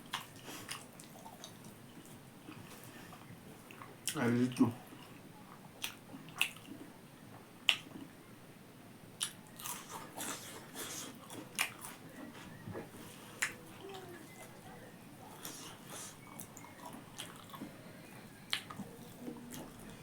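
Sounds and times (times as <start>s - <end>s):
crunchy snaps: 7.6s - 8.1s.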